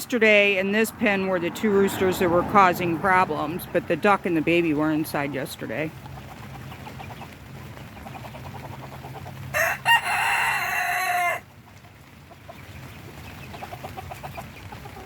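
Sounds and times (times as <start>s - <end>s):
fowl clucking: 6.0s - 12.7s, 13.3s - 15.0s
rooster crowing: 9.5s - 11.5s.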